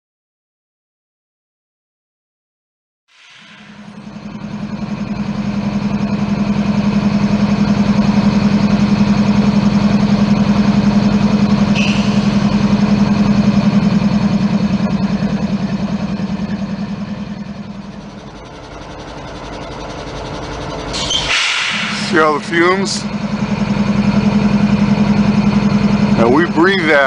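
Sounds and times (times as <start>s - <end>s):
brief hiss: 3.1s - 4.0s, 21.3s - 22.0s
diesel locomotive engine running: 3.2s - 27.0s.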